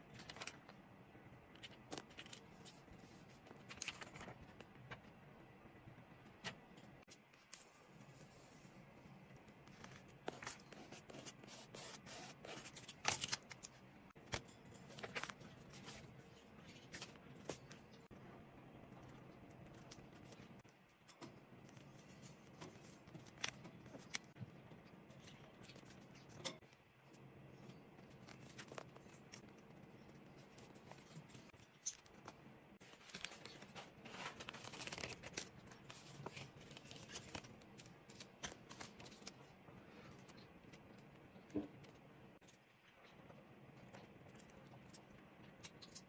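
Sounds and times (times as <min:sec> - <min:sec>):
paper rustling: 0:01.6 - 0:05.0, 0:09.6 - 0:13.7, 0:14.3 - 0:17.8, 0:30.2 - 0:39.4.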